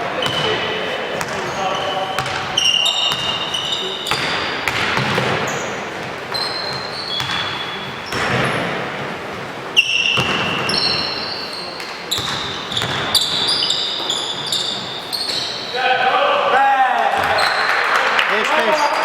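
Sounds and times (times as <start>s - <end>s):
sneakers squeaking on floor: 0.0s - 15.8s, 17.2s - 17.8s
basketball bouncing on court: 0.2s - 8.8s, 10.0s - 11.2s, 11.8s - 15.6s, 17.2s - 17.6s.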